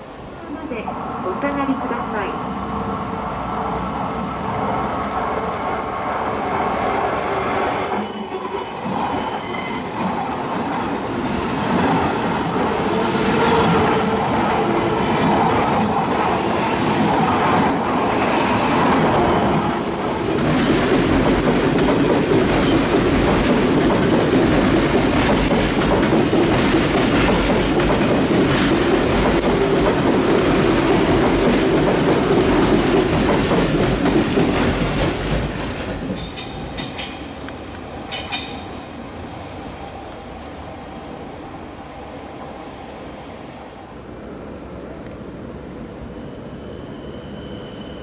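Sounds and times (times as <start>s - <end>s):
train wheels rumbling on rails: 0.1s - 43.8s
high-pitched wheel squeals: 8.0s - 10.4s.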